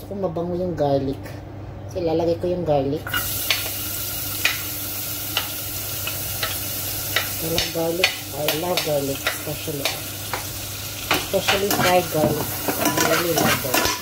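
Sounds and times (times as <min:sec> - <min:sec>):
garlic sizzling in hot oil: 0:03.1 - 0:14.0.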